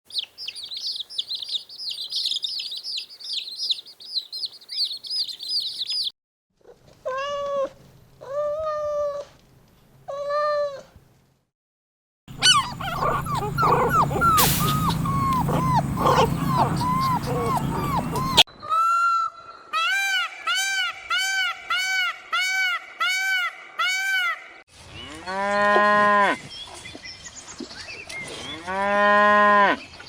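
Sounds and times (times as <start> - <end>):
high animal chirps: 0.1 - 6.1, 12.3 - 18.4
short animal calls: 12.4 - 18.4
long drawn-out animal calls: 12.4 - 24.5.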